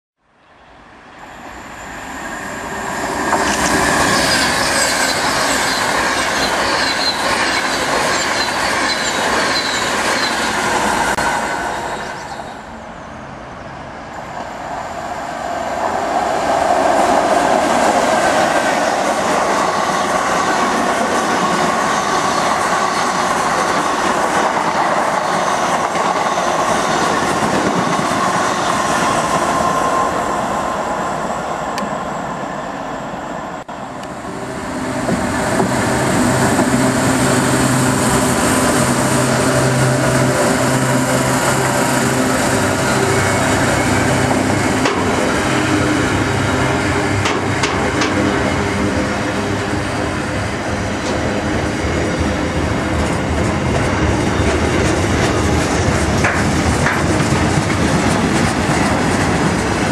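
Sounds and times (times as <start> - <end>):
electric train passing at speed: 0.3 - 59.9
wheels running on rails: 47.2 - 59.9.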